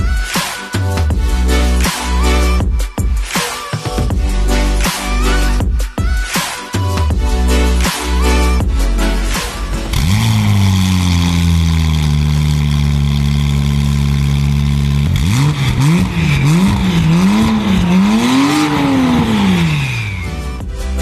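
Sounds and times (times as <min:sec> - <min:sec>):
car engine revving: 0:08.1 - 0:21.0.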